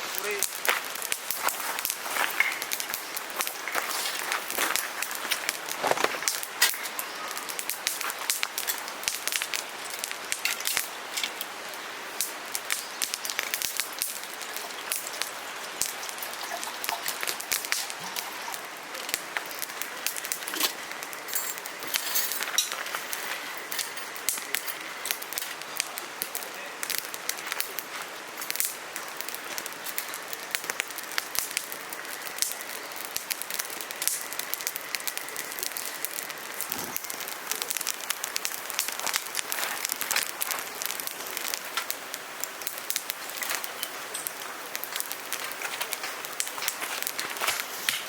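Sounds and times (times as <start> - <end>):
fire hissing: 0.0 - 48.0
wood fire crackling and popping: 0.0 - 48.0.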